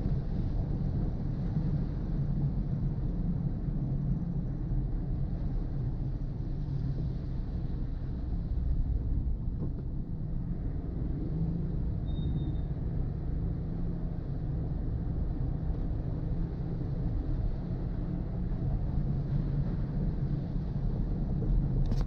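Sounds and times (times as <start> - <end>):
car driving on wet road: 5.1 - 22.0.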